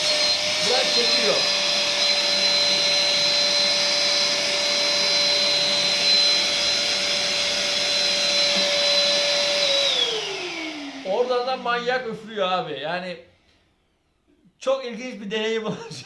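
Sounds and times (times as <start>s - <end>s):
vacuum motor winding down: 0.0s - 12.2s
vacuum cleaner whining: 0.0s - 12.8s.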